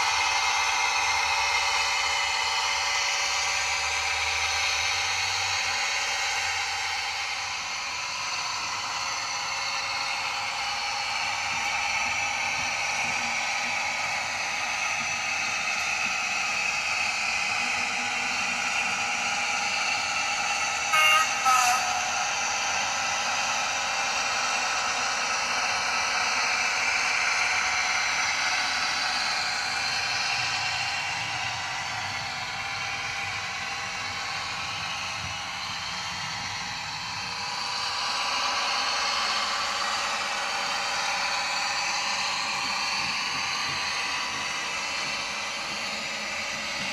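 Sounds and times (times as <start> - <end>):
model locomotive engine sound from speaker: 0.0 - 46.9.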